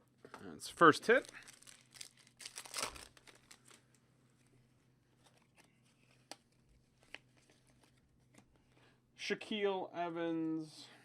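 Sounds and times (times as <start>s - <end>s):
trading cards rustling: 0.8s - 3.9s.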